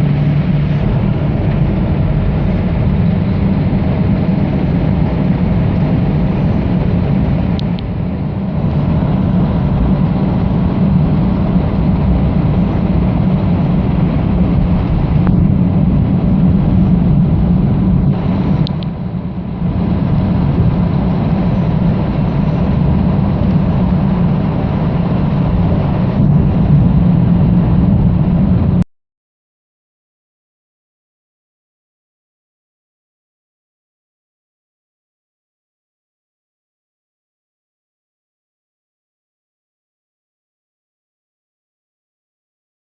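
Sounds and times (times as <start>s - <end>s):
diesel coach engine rumbling: 0.0s - 28.8s.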